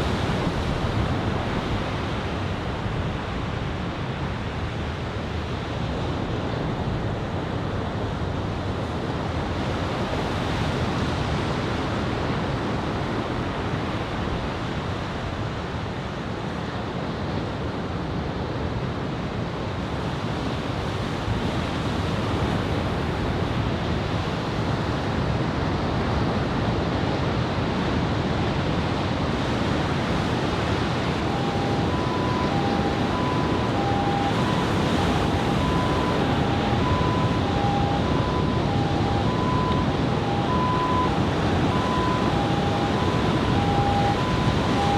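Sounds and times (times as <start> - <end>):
wind on microphone: 20.6 - 44.9
ocean surf breaking: 29.6 - 44.9.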